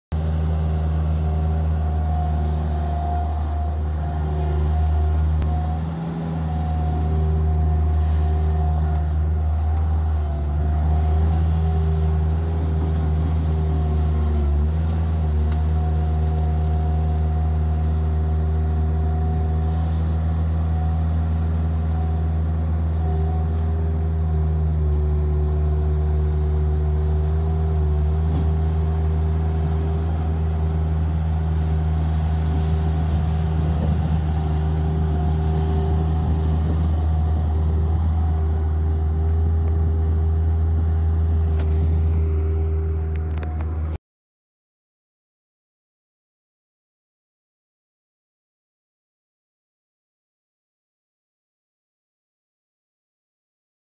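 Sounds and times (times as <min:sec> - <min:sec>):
diesel engine running: 0:00.1 - 0:44.0.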